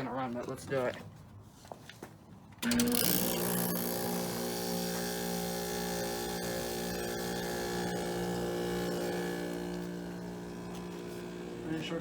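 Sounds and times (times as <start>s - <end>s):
air conditioner electric hum: 2.6s - 12.0s
low compressor drone: 3.8s - 12.0s.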